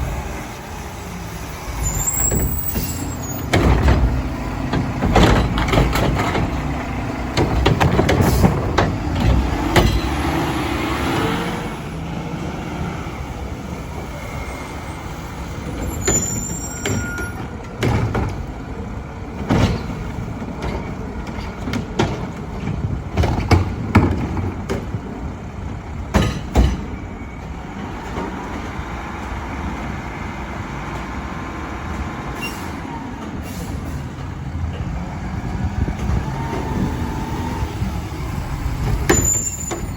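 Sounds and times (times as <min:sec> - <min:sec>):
brief high squeal: 0:01.8 - 0:03.5, 0:15.8 - 0:17.4, 0:32.4 - 0:32.8, 0:39.1 - 0:39.9.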